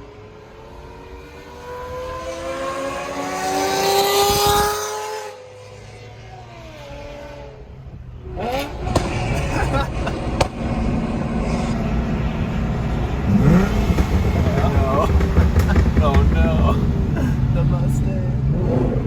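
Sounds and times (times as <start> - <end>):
car engine accelerating: 8.2 - 19.0.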